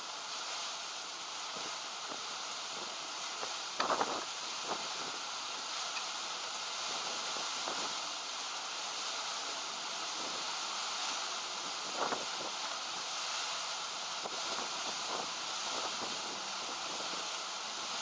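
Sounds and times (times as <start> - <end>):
wind noise: 1.6 - 5.3, 10.1 - 13.4, 14.2 - 18.0
small clicks and clinks: 16.5 - 17.5.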